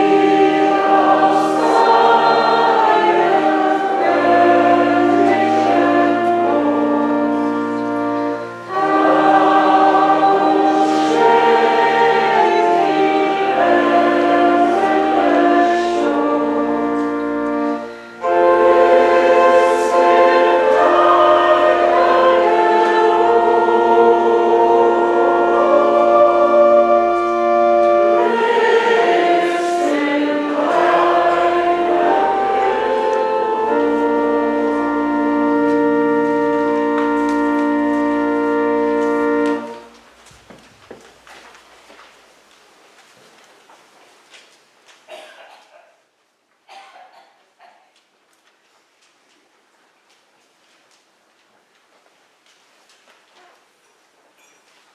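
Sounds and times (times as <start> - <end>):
choir singing a hymn: 0.0 - 40.0
organ accompaniment: 0.0 - 40.2.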